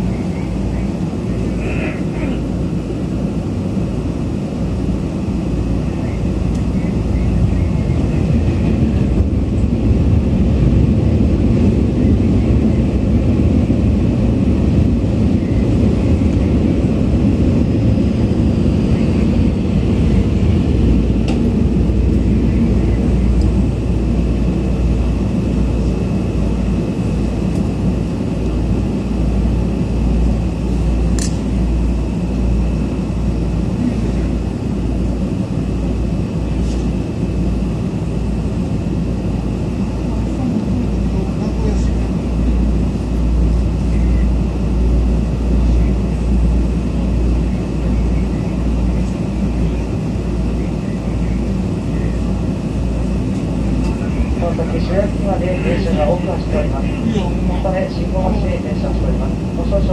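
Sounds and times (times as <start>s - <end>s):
train cabin rumble: 0.0s - 59.9s
sharp click: 31.2s - 31.4s
faint high whine: 43.5s - 46.2s.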